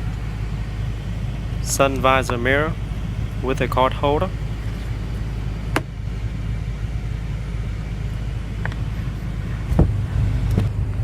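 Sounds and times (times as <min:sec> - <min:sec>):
interior trim clicks: 0:00.0 - 0:06.0, 0:08.6 - 0:09.1
car engine idling: 0:00.0 - 0:11.0.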